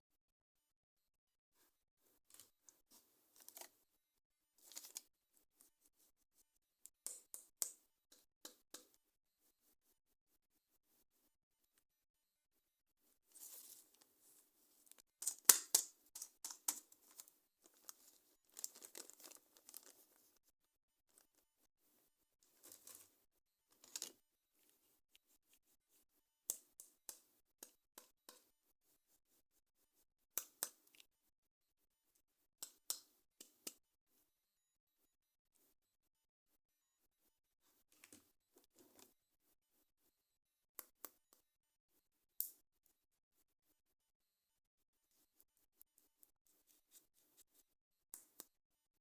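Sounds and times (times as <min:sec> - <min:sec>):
sharp clicks and snaps: 0:15.0 - 0:18.0
packaging tearing and crinkling: 0:18.6 - 0:19.9.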